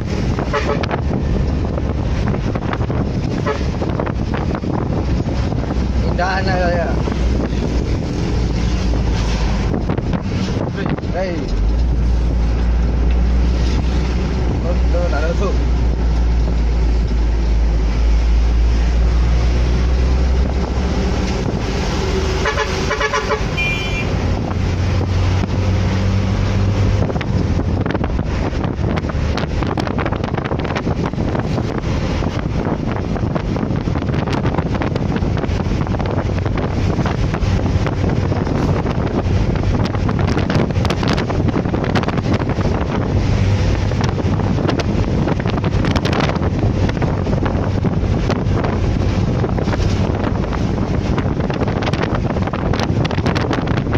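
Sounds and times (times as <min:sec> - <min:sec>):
low engine hum: 0:00.0 - 0:53.9
road traffic: 0:00.0 - 0:53.9
wind on microphone: 0:00.0 - 0:53.9
vehicle horn: 0:00.5 - 0:01.0, 0:03.4 - 0:03.9, 0:22.4 - 0:24.2.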